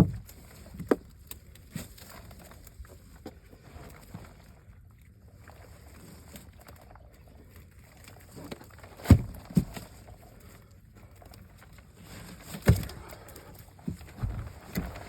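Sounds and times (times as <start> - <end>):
low boat noise: 0.0 - 15.0.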